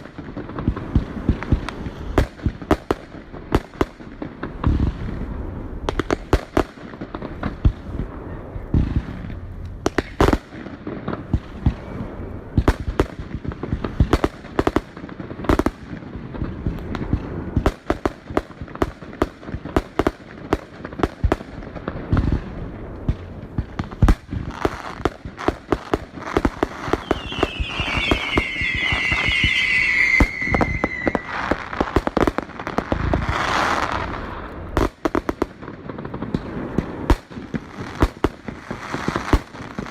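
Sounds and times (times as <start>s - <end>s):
fireworks banging and crackling: 0.0s - 39.9s
whistling firework shells: 25.8s - 32.4s.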